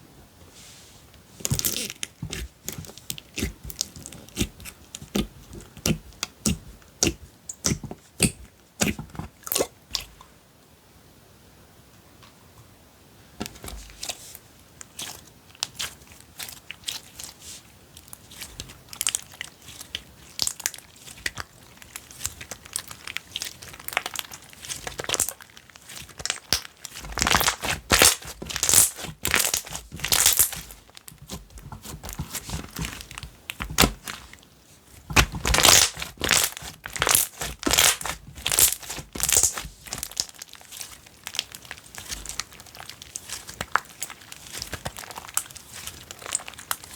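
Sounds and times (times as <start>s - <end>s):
slime crackling and popping: 1.4s - 10.1s, 14.8s - 17.4s, 18.0s - 46.9s.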